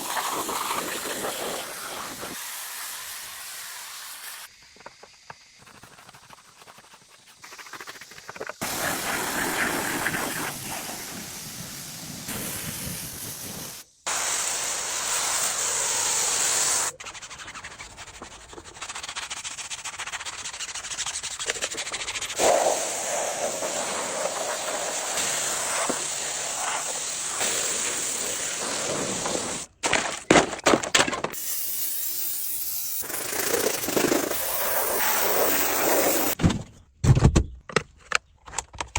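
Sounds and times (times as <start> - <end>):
cleaning equipment hissing: 0.0 - 5.6, 7.1 - 17.0, 22.0 - 29.7, 31.4 - 36.4.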